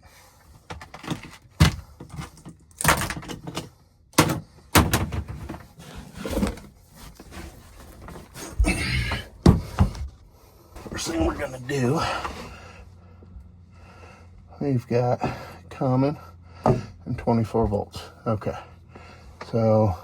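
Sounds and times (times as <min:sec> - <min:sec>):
knocks and thumps: 0:04.2 - 0:06.6, 0:08.0 - 0:10.2, 0:16.6 - 0:17.0
rustling: 0:05.3 - 0:08.6.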